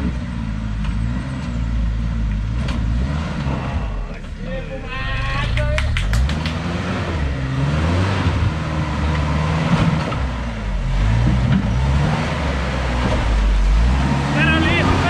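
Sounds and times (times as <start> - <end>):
off-road engine revving: 0.0 - 15.0
steady noisy rumble: 10.3 - 15.0.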